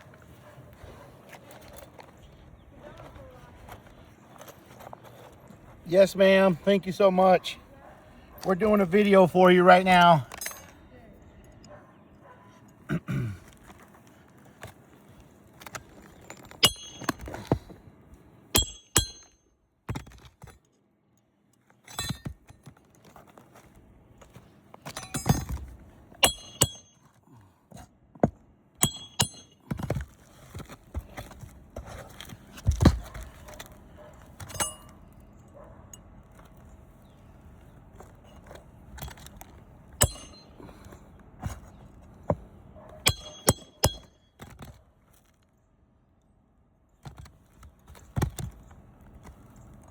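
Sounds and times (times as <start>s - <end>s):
pry bar clinking on metal nails: 10.2s - 10.8s, 16.2s - 17.5s, 18.6s - 19.4s, 21.9s - 22.5s, 24.9s - 25.6s, 26.2s - 27.0s, 28.8s - 29.8s, 34.4s - 35.0s, 40.0s - 40.6s, 43.0s - 44.2s.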